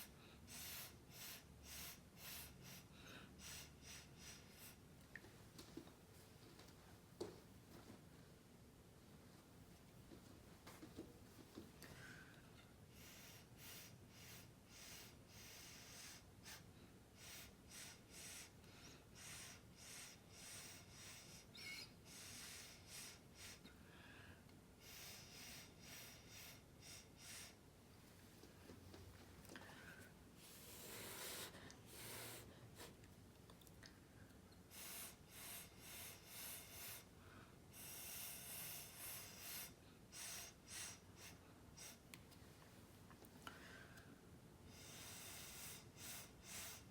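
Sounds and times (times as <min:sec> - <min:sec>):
short puffs of breath: 0:00.0 - 0:04.9, 0:11.9 - 0:27.6, 0:29.6 - 0:33.0, 0:34.7 - 0:42.1, 0:43.5 - 0:46.9.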